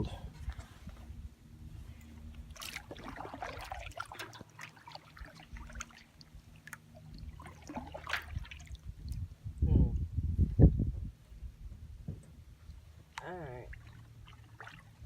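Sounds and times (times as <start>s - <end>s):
water trickling and dripping: 2.0s - 9.3s.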